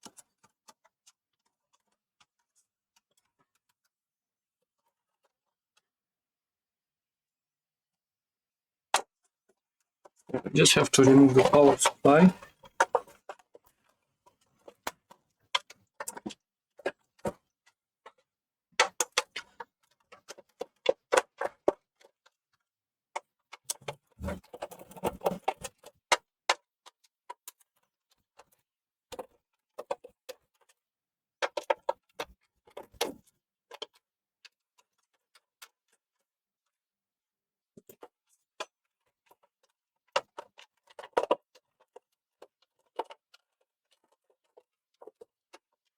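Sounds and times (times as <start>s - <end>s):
plastic and metal parts clattering: 23.7s - 25.9s.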